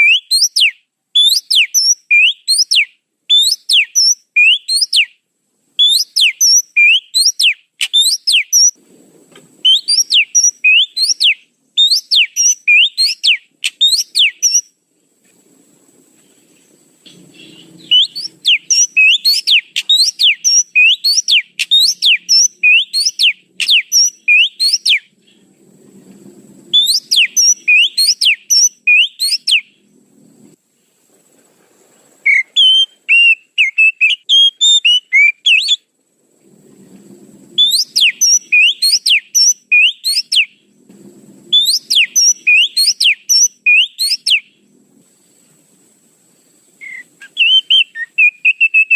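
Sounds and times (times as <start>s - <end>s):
bird whistling sharp rising notes: 0.0s - 5.1s, 5.8s - 8.8s, 9.6s - 14.7s, 17.0s - 25.1s, 26.7s - 29.7s, 32.2s - 35.9s, 37.6s - 40.6s, 41.5s - 44.5s, 46.8s - 48.9s.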